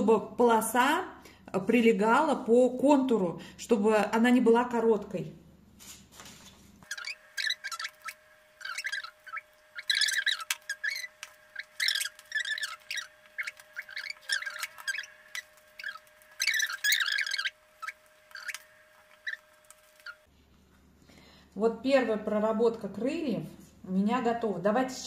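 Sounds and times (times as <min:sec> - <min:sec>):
faint steady hum: 0:05.1 - 0:25.0
bird chirping and squawking: 0:06.8 - 0:20.3.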